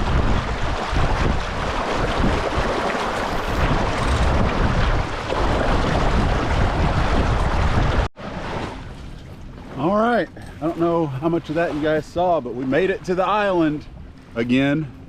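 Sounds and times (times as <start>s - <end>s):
wind buffeting microphone: 0.0s - 9.7s
rushing water: 0.0s - 15.0s.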